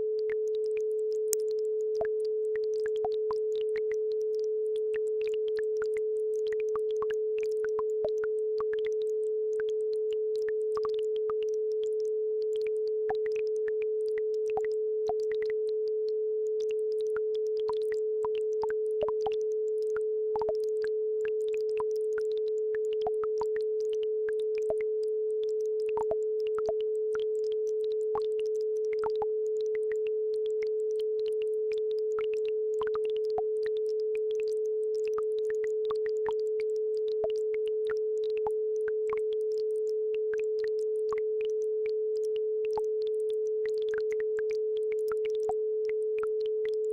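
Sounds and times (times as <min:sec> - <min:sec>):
steady sine tone: 0:00.0 - 0:46.9.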